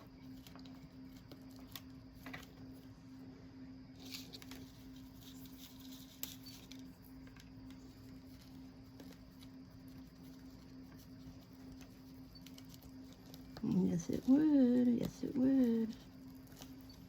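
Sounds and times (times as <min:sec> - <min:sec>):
steady low hum: 0:00.0 - 0:17.0
hands rustling craft materials: 0:03.9 - 0:17.0.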